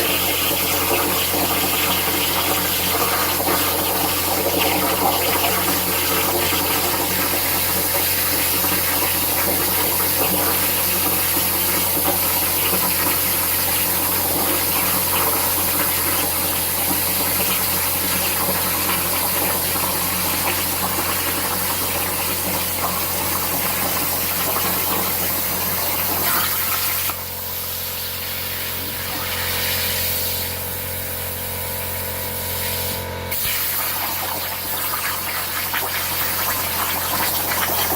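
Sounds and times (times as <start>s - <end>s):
plasma cutter hissing: 0.1s - 11.0s, 16.6s - 16.8s, 21.5s - 37.9s.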